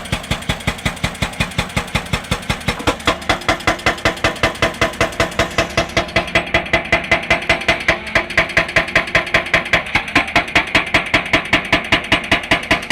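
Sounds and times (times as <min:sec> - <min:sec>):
excavator engine running: 0:00.0 - 0:11.5
hydraulic rock breaker hammering: 0:00.0 - 0:12.9.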